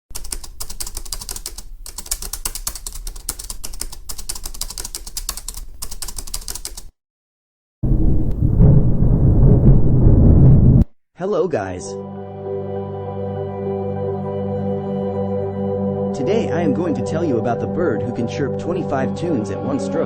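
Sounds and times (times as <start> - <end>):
typewriter clicking: 0.1 - 6.9
loud low-pitched sound: 7.8 - 10.9.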